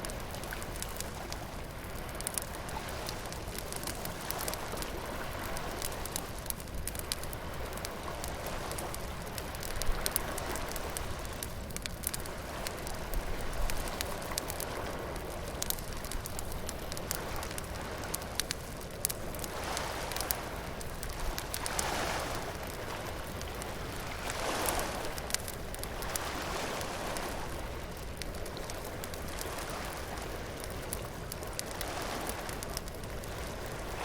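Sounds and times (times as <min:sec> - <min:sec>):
bonfire crackling and popping: 0:00.0 - 0:34.0
surf washing in and out: 0:19.3 - 0:34.0.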